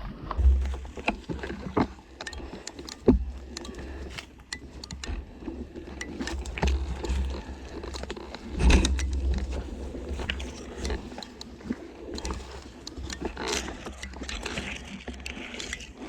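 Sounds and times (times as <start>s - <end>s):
knocks and scrapes: 0.3s - 1.8s, 6.0s - 11.4s.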